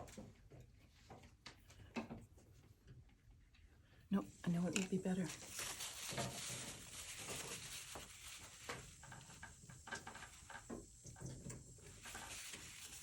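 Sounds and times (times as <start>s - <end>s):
brush scrubbing on paper: 5.2s - 10.2s, 11.8s - 13.0s.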